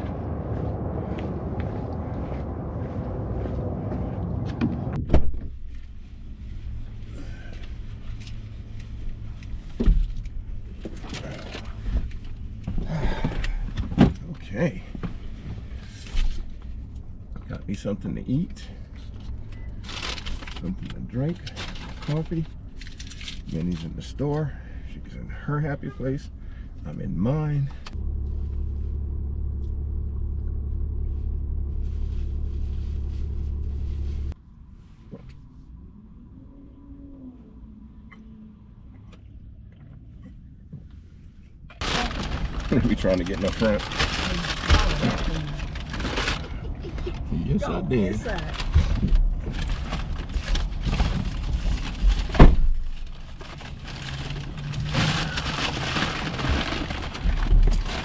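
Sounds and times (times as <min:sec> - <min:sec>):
low rumble inside a truck: 0:00.0 - 0:58.0
thump: 0:04.6 - 0:05.6.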